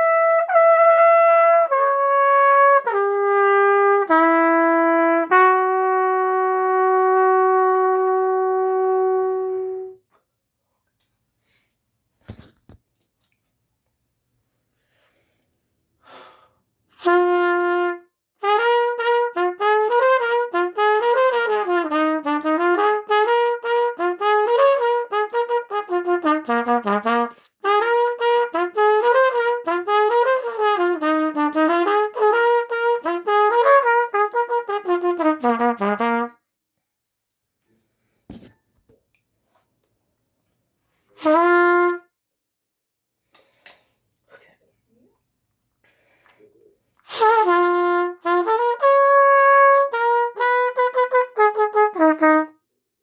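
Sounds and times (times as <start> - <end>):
solo trumpet playing: 0.0 - 10.0, 17.0 - 36.4, 41.1 - 42.2, 47.1 - 52.6.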